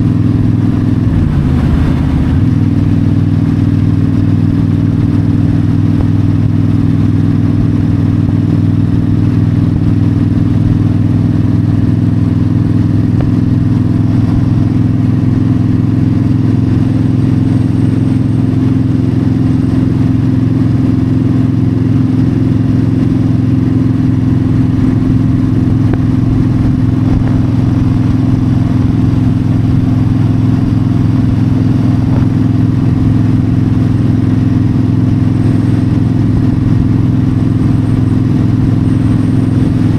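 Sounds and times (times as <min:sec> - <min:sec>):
motorcycle engine cruising: 0:00.0 - 0:05.6
wind noise: 0:00.5 - 0:03.6.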